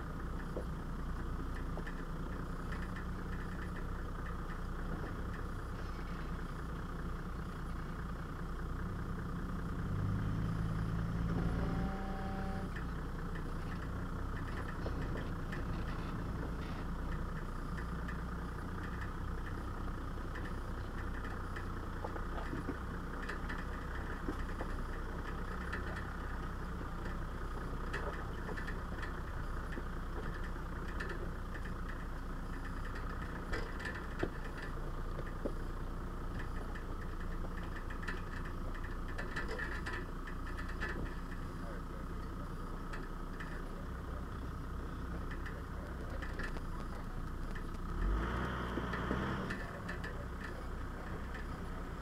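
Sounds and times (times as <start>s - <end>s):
off-road vehicle engine running: 0.0s - 52.0s
knocks and rattles: 36.2s - 41.5s.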